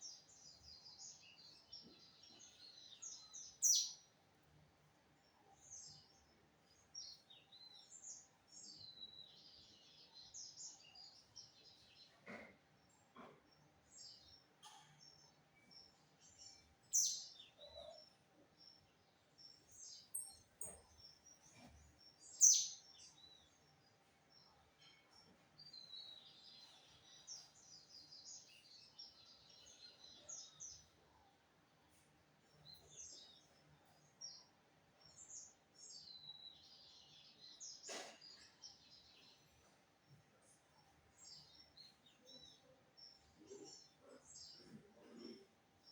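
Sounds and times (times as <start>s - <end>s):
bird chirping and twittering: 0.0s - 4.2s, 12.9s - 31.1s, 32.4s - 39.7s, 40.4s - 45.9s.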